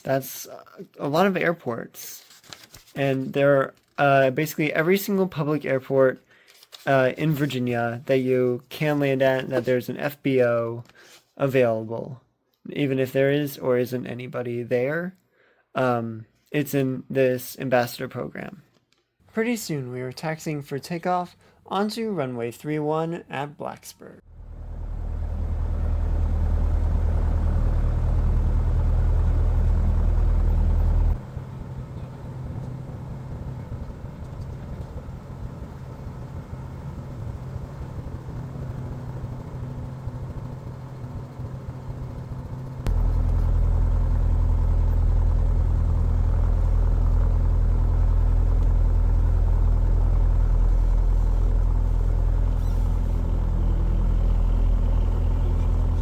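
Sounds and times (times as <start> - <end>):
airplane engine droning: 24.3 - 56.0.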